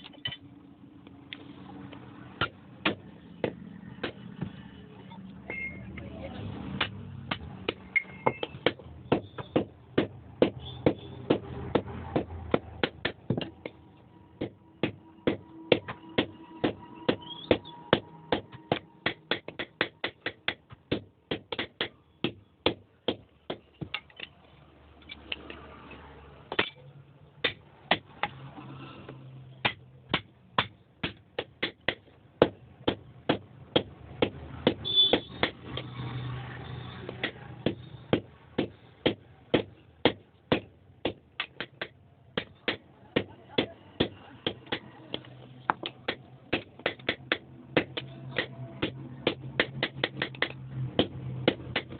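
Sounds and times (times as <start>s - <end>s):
hammer striking iron: 14.4s - 24.3s.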